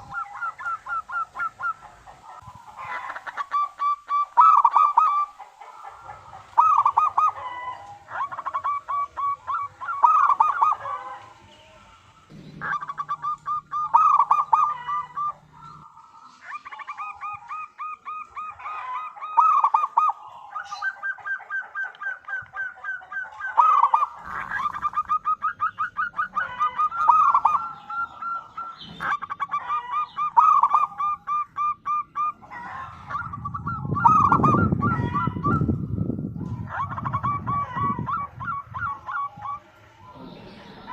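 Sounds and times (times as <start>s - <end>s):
dove cooing trills: 0.0s - 40.9s.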